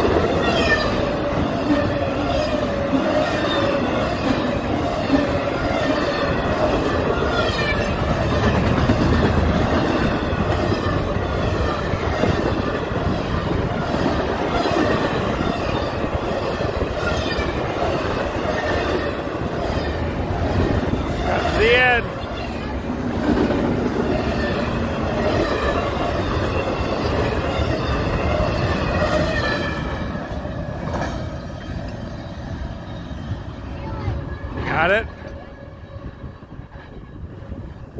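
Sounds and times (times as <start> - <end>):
freight train wheels clattering: 0.0 - 30.2.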